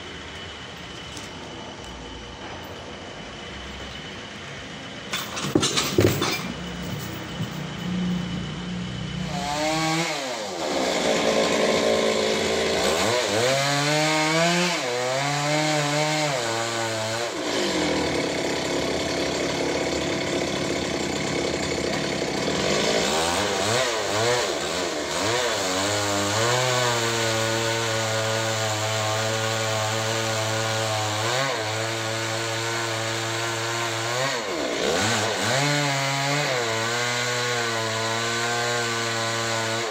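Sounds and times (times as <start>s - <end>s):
sawmill engine running: 0.0s - 15.2s, 16.6s - 27.4s.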